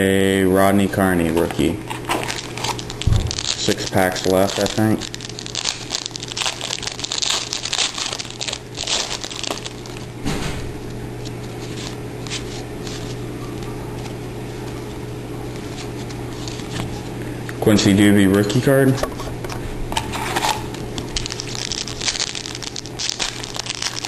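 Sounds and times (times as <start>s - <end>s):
steady low hum: 0.0s - 24.0s
plastic wrapper crinkling: 1.2s - 10.2s, 11.2s - 17.2s, 20.1s - 24.0s.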